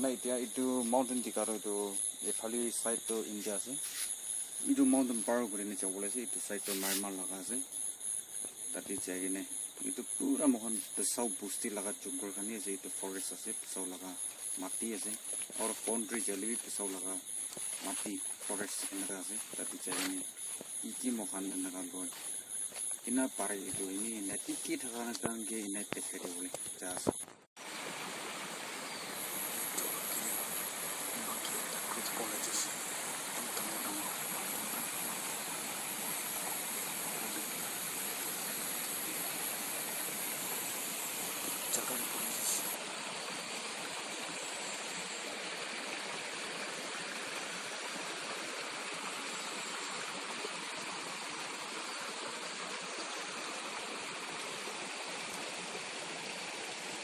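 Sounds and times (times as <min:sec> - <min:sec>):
stream running: 0:00.0 - 0:57.0.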